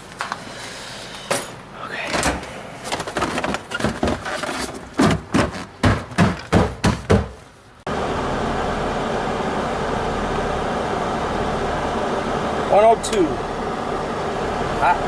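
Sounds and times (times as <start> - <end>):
refrigerator hum: 0.0 - 15.0
refrigerator panels knocking: 3.0 - 7.4.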